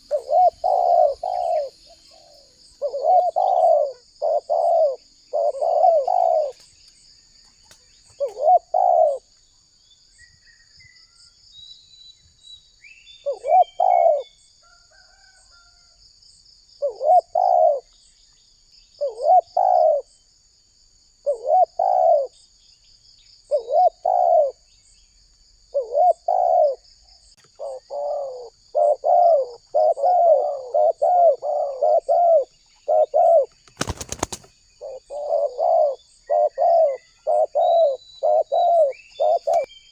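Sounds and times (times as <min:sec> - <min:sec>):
dove cooing: 0:00.0 - 0:06.7, 0:08.2 - 0:09.3, 0:13.2 - 0:14.3, 0:16.8 - 0:17.9, 0:19.0 - 0:20.1, 0:21.2 - 0:22.4, 0:23.5 - 0:24.6, 0:25.7 - 0:26.8, 0:27.5 - 0:39.7.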